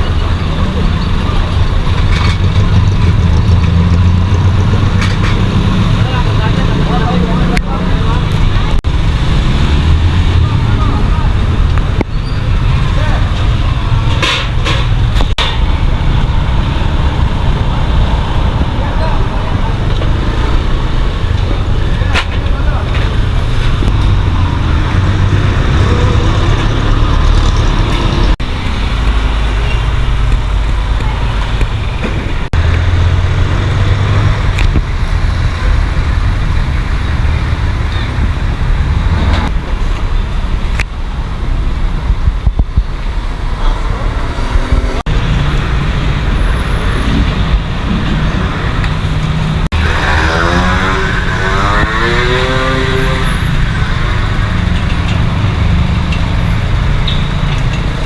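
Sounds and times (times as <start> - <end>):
road traffic rumble: 0.0 - 58.0
vehicles passing: 0.0 - 58.0
vehicle engine passing by: 43.6 - 58.0.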